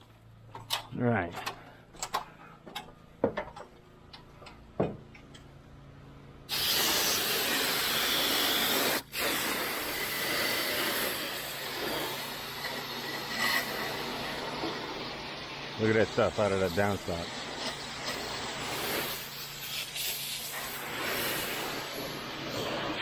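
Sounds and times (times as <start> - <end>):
pressure washer spraying water: 6.5 - 23.0.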